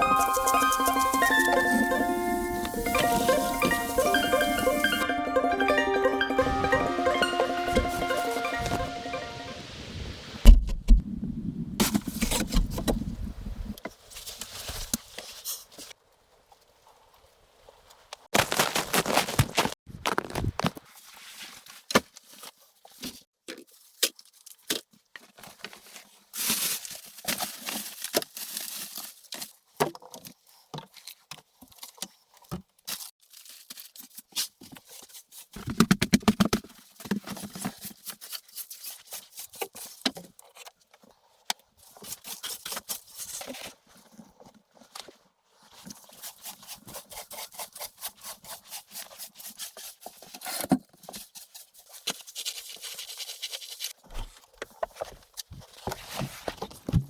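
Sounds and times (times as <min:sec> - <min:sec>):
scraping and rustling: 0:18.4 - 0:23.2, 0:41.8 - 0:57.0.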